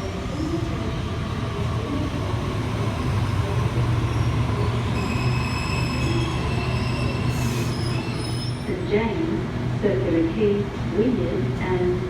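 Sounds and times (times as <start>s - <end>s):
electric train hum and rumble: 0.0s - 12.0s
high wheel squeal: 4.9s - 8.7s.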